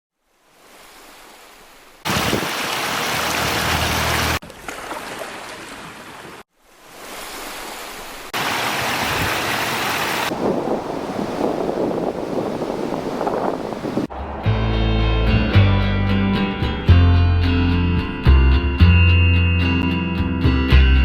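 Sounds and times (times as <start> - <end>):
rushing water: 0.2 - 14.1.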